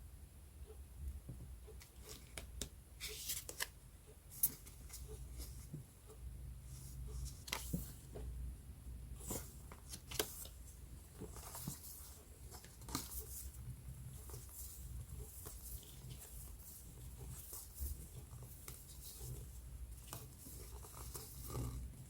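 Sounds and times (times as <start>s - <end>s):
paper rustling and crinkling: 7.2s - 8.1s, 9.2s - 13.6s.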